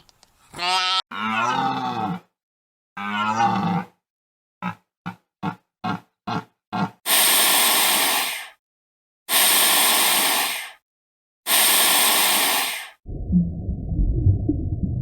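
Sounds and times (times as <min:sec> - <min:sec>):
grunt-like pulses: 0:01.1 - 0:02.4, 0:03.0 - 0:04.0, 0:04.6 - 0:07.0
loud long hisses: 0:07.1 - 0:08.5, 0:09.3 - 0:10.8, 0:11.5 - 0:13.0
low rumbling: 0:13.0 - 0:15.0.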